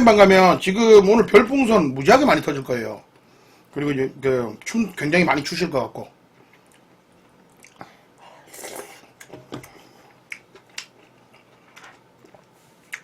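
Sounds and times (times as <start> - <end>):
mouth noises of eating: 6.4 - 13.0.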